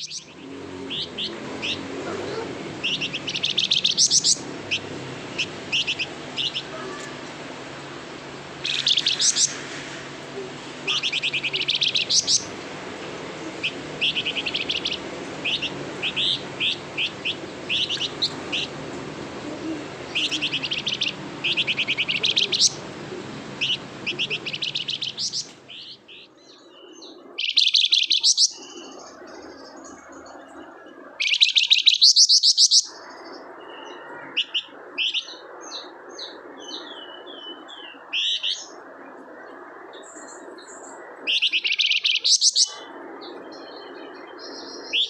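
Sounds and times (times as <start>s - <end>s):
steady low hum: 0.0s - 27.4s
songbird chirping and trilling: 0.0s - 45.0s.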